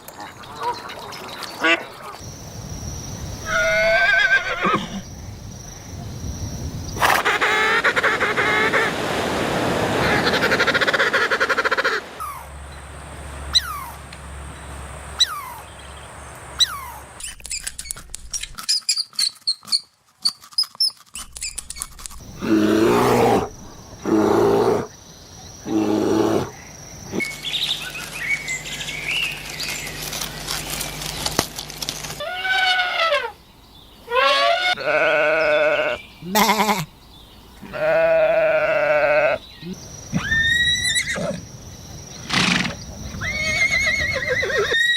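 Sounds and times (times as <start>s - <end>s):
animal chirps and clicks: 16.6s - 22.2s
sheep bleating: 34.2s - 36.9s, 37.6s - 39.4s.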